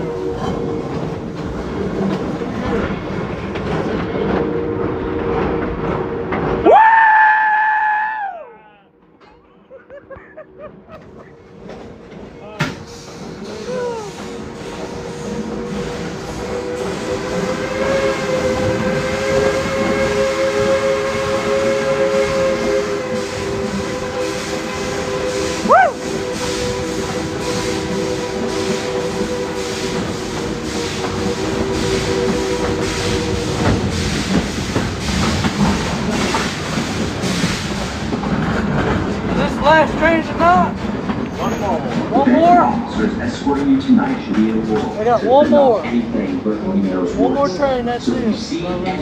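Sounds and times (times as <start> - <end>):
steam locomotive whistle: 0.0 - 0.9, 13.6 - 34.4
train running rumble: 0.0 - 7.0, 9.0 - 49.0.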